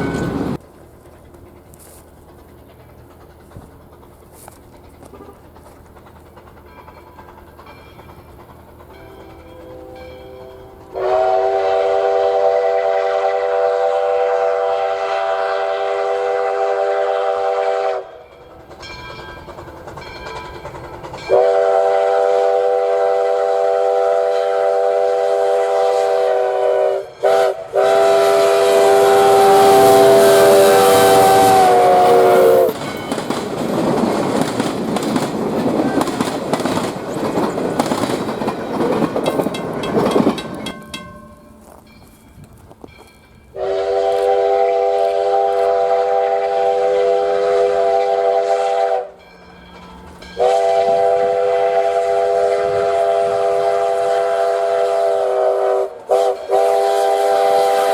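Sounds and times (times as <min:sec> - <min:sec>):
train clattering over rails: 0:00.0 - 0:14.2, 0:15.4 - 0:57.9
steam whistle: 0:09.7 - 0:18.3, 0:21.3 - 0:32.8, 0:43.5 - 0:49.2, 0:50.4 - 0:57.9.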